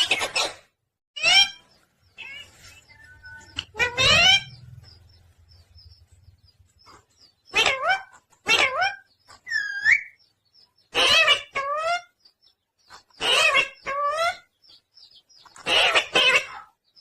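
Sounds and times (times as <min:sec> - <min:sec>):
parrot calling: 0:00.0 - 0:05.2, 0:07.4 - 0:10.2, 0:10.8 - 0:12.2, 0:13.2 - 0:14.6, 0:15.4 - 0:16.9.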